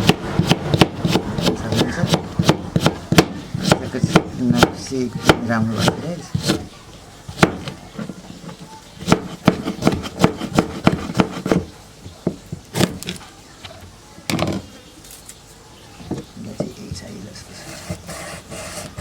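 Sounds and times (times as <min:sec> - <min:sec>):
knife chopping on cutting board: 0:00.0 - 0:06.6, 0:09.0 - 0:11.7.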